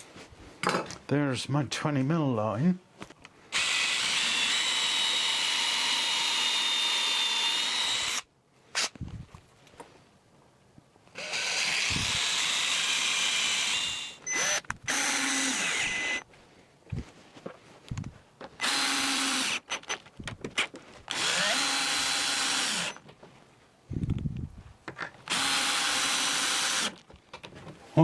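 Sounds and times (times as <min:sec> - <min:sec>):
power drill drilling: 0:03.5 - 0:08.9, 0:11.2 - 0:16.2, 0:18.6 - 0:19.9, 0:21.1 - 0:23.0, 0:25.3 - 0:27.0.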